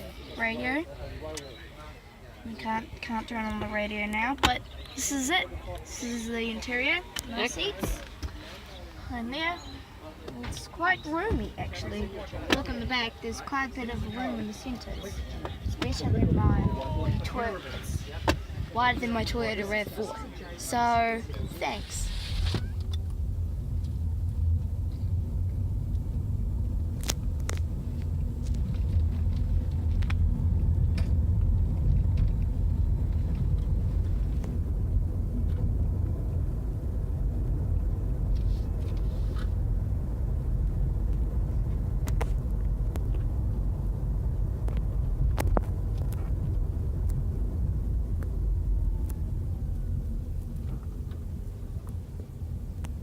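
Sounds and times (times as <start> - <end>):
car road and tyre rumble: 0.0 - 53.0.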